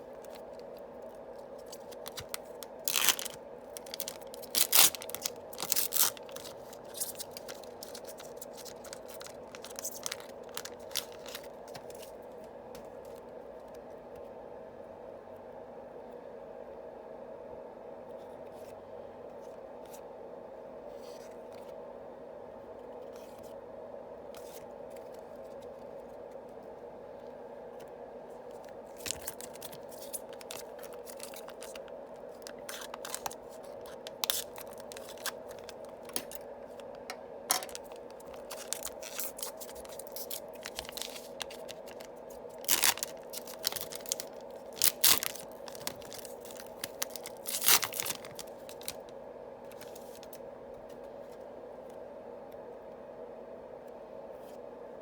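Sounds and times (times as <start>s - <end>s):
steady low hum: 0.0s - 55.0s
wrappers torn and crinkled: 1.6s - 12.1s, 28.9s - 36.4s, 37.5s - 49.0s
cards handled: 1.6s - 12.2s, 28.6s - 49.0s.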